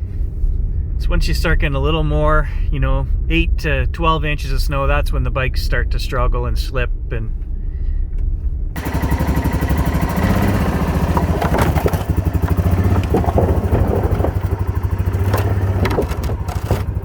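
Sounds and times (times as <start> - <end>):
atv engine chugging: 8.8 - 17.0
knocks and rattles: 8.8 - 17.0.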